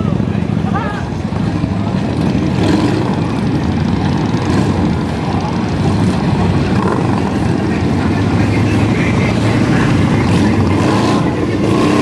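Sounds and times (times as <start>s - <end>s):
motorcycle engines running: 0.0s - 12.0s.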